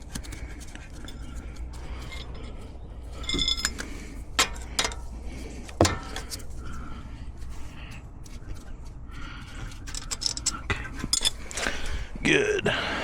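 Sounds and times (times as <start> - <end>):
metal hand tools clinking: 3.2 - 5.0, 9.9 - 11.8.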